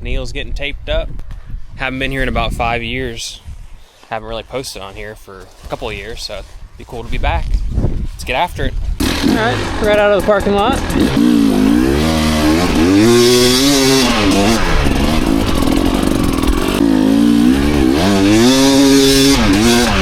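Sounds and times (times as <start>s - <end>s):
dirt bike engine revving: 9.0s - 20.0s.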